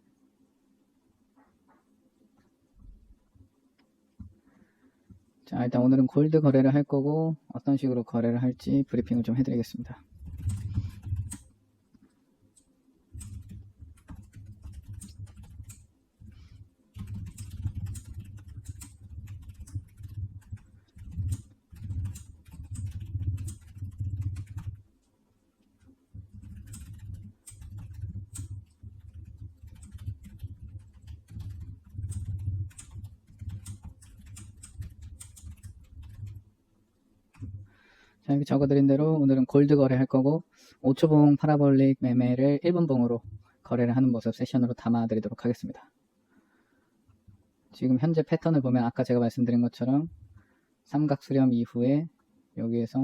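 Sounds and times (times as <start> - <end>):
typing on computer keyboard: 10.0 - 11.6, 12.6 - 24.9, 25.8 - 36.5, 37.3 - 37.7.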